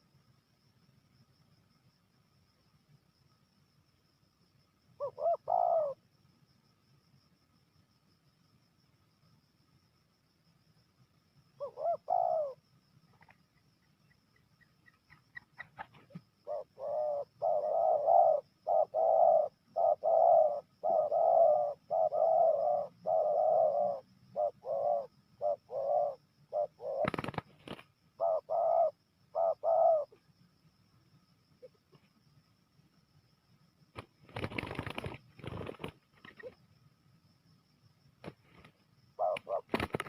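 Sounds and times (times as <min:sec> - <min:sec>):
dove cooing: 0:05.0 - 0:06.0, 0:11.6 - 0:12.6, 0:15.3 - 0:30.2, 0:39.2 - 0:40.0.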